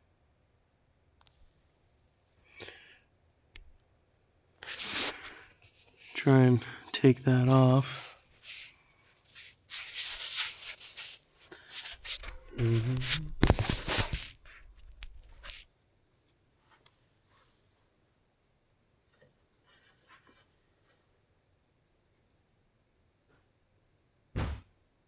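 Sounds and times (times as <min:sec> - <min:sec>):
hands scraping and rubbing: 0:04.6 - 0:06.3, 0:08.4 - 0:08.7, 0:09.3 - 0:15.7
person grunting: 0:12.6 - 0:13.4.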